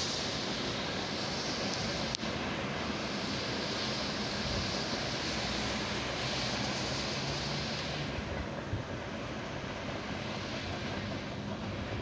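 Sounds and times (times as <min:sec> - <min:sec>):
high hiss: 0:00.0 - 0:08.3
freight train rolling past: 0:00.0 - 0:12.0.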